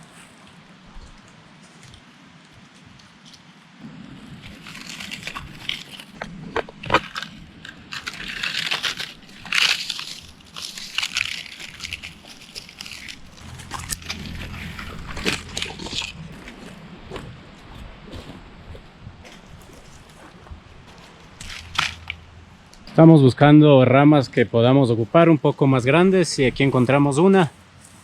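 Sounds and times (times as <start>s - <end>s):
dry leaves crunching and rustling: 2.8s - 23.0s, 25.7s - 28.0s
twigs snapping: 4.4s - 17.3s, 19.3s - 23.0s.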